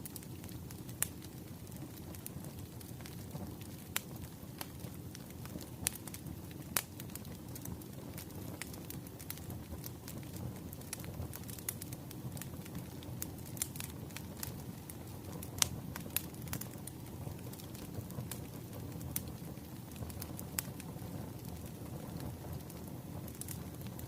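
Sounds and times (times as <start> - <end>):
firewood crackling and popping: 0.0 - 24.0
low rumble of fire: 0.0 - 24.0.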